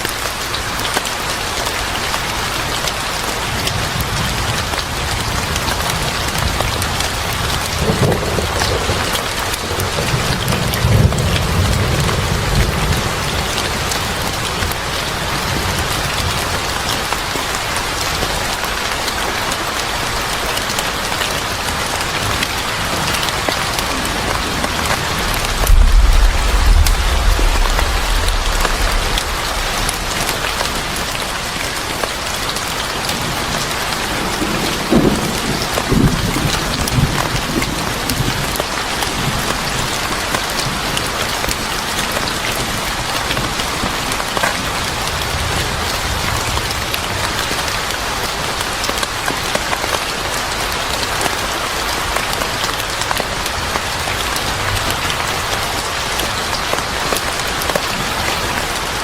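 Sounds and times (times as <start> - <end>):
heavy rain pattering: 0.0 - 59.0
thunder rolling: 23.7 - 32.7.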